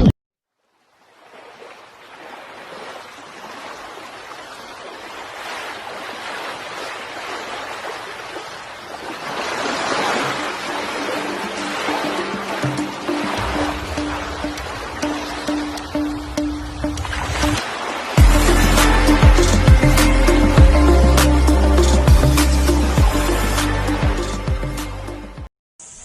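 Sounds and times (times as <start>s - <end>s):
rushing water: 0.6s - 25.3s
faint steady musical tones: 10.4s - 17.6s.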